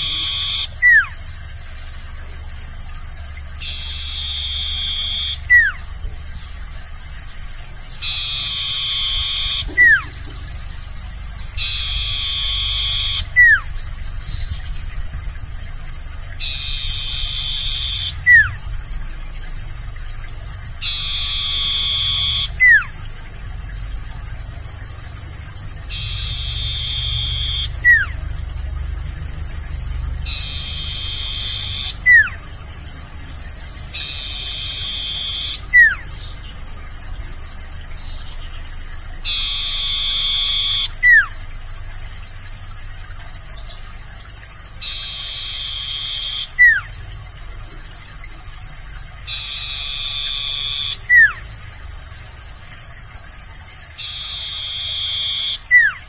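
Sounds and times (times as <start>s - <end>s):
bird raspy call with whistle: 0.0s - 1.2s, 3.6s - 5.9s, 8.0s - 10.7s, 11.5s - 14.6s, 16.4s - 18.6s, 20.8s - 23.0s, 25.9s - 28.2s, 30.2s - 32.5s, 33.7s - 36.6s, 39.2s - 41.4s, 44.8s - 47.0s, 49.3s - 51.5s, 54.0s - 56.0s
steady low hum: 0.0s - 56.0s.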